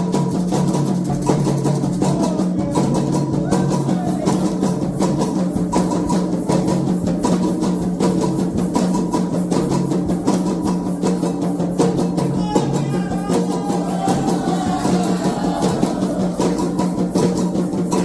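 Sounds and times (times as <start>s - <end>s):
hand drums playing fast rhythm: 0.0s - 18.0s
voices singing: 1.2s - 5.0s, 12.1s - 18.0s.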